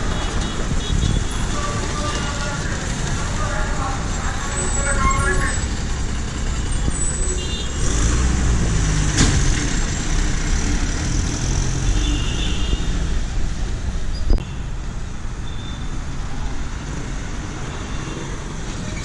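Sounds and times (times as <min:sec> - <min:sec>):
heavy vehicle engine running: 0:00.0 - 0:14.1
traffic noise: 0:00.0 - 0:19.0.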